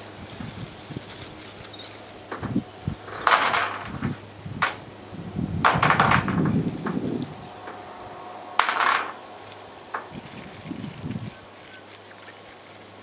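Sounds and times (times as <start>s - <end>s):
metal rails knocking and clattering: 2.3s - 4.8s, 5.6s - 7.0s, 8.6s - 9.2s.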